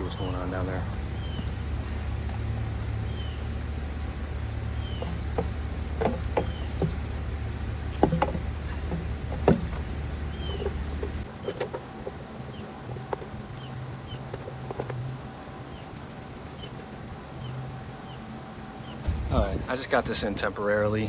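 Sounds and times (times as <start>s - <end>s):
bird chirps: 0.0s - 19.8s
low machine hum: 0.0s - 21.0s
knocks and clicks from handling: 2.2s - 17.0s.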